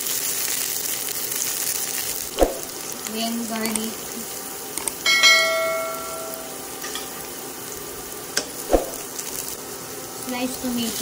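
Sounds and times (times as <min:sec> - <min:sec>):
onion and garlic sizzling in oil: 0:00.0 - 0:11.0
bright bell-like ding: 0:05.0 - 0:06.6.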